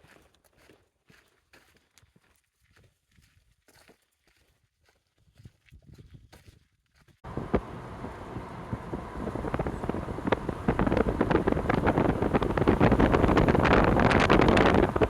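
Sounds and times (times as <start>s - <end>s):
wind buffeting microphone: 7.2s - 15.0s.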